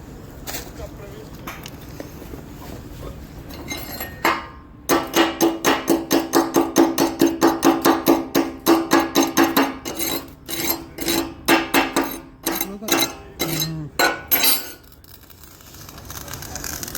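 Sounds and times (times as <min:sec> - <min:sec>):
hammer striking steel: 0:03.5 - 0:14.8.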